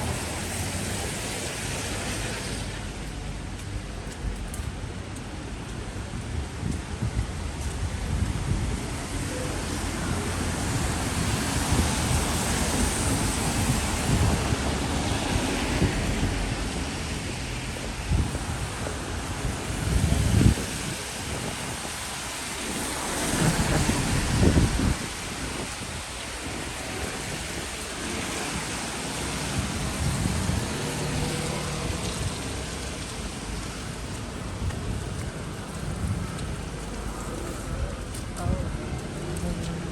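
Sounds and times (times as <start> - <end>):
rain hiss: 0.0 - 4.0, 8.8 - 38.3
wind buffeting microphone: 4.2 - 39.9.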